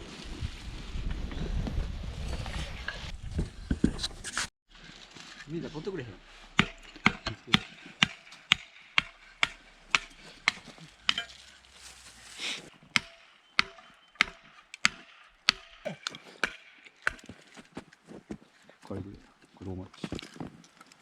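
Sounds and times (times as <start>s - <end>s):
axe chopping firewood: 6.2s - 11.7s, 12.9s - 17.8s.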